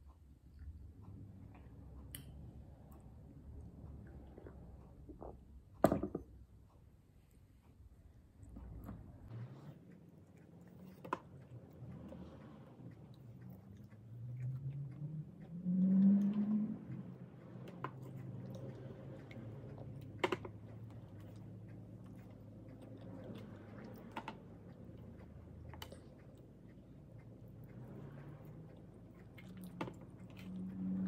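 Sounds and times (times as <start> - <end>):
person chewing food: 8.4 - 31.0.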